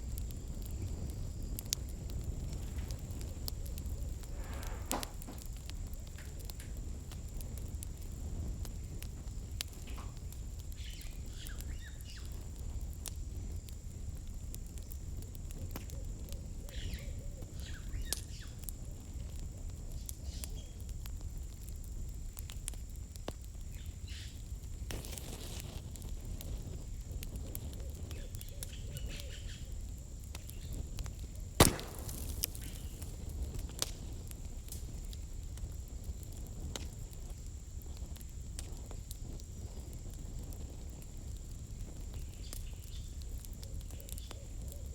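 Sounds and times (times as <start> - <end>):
campfire crackling: 0.0 - 44.9
loud sharp pop: 4.4 - 5.4, 31.6 - 33.1.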